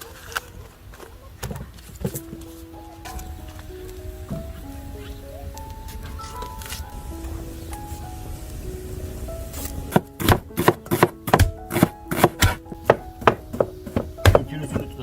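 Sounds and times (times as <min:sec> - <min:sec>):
soft background music: 0:00.0 - 0:15.0
knife chopping on cutting board: 0:10.2 - 0:14.9.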